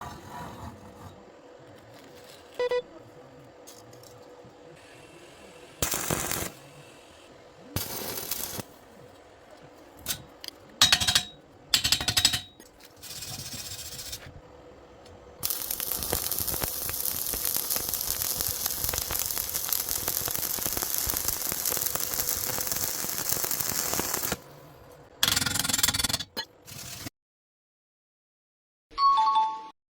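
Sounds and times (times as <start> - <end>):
welding arc crackling: 5.8 - 6.6, 7.8 - 8.8, 15.4 - 24.4.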